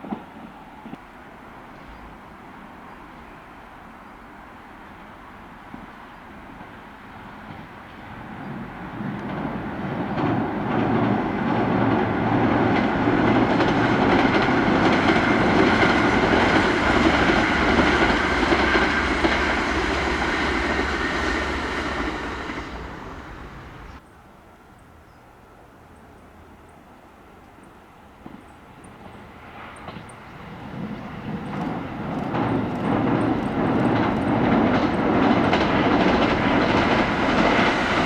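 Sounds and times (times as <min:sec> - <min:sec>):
electric train passing: 0:00.0 - 0:24.2, 0:25.6 - 0:38.0.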